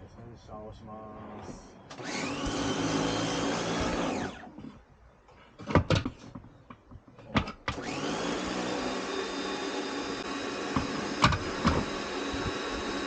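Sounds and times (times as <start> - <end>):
pressure washer motor whining: 1.2 - 4.7, 7.7 - 13.0.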